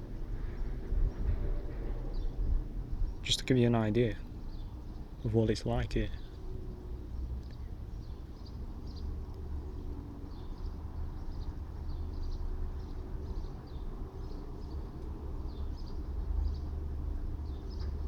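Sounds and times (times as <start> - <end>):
distant traffic rumble: 0.0 - 18.0
small birds chirping: 0.0 - 18.0.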